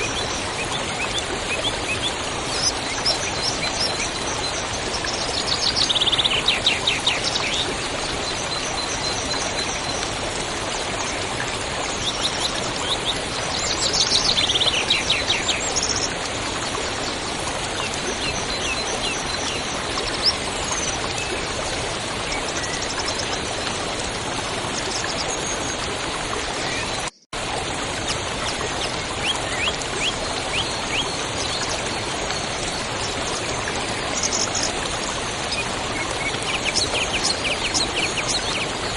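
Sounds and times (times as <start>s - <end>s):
songbirds singing: 0.0s - 10.2s, 11.0s - 23.6s, 28.4s - 38.9s
running water: 0.0s - 38.9s.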